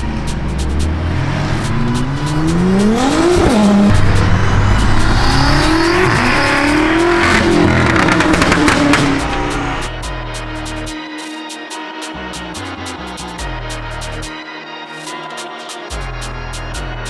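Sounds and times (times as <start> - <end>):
car engine revving and accelerating: 0.0 - 10.0.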